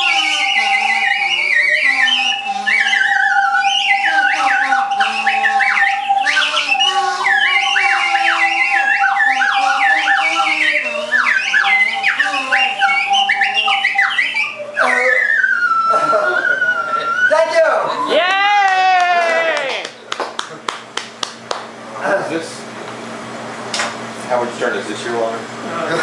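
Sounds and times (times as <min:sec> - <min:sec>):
slide whistle swooping: 0:00.0 - 0:18.3
steady high tone: 0:00.0 - 0:18.6.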